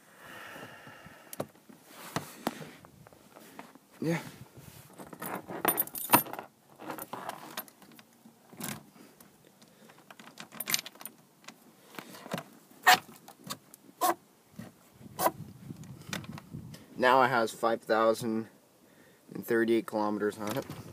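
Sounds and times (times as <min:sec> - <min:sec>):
small metal parts rattling: 0:05.0 - 0:07.8, 0:10.0 - 0:11.2.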